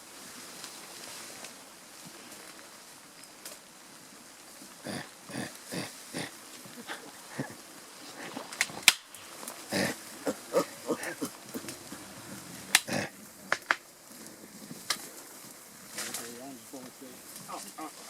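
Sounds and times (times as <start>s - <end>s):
gorilla grunting: 4.8s - 13.6s
sharp crack: 8.2s - 13.9s, 14.8s - 15.2s, 15.9s - 17.8s.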